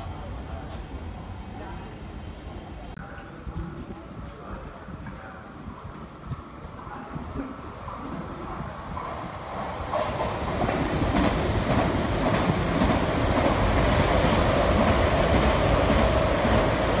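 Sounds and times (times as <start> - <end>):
train wheels rushing on rail: 0.0 - 17.0
train whine: 7.0 - 17.0.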